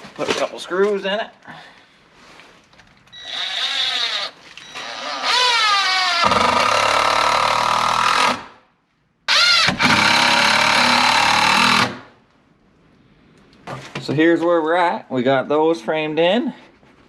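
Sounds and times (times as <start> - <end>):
power screwdriver driving screws: 3.2 - 8.4, 9.3 - 12.0.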